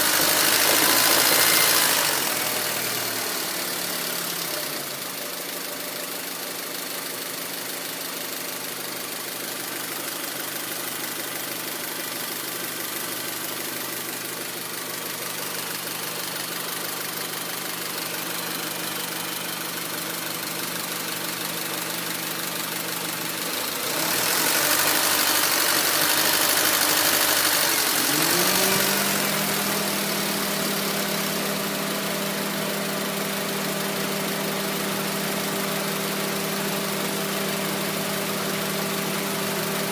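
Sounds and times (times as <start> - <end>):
car engine idling roughly: 0.0 - 39.9.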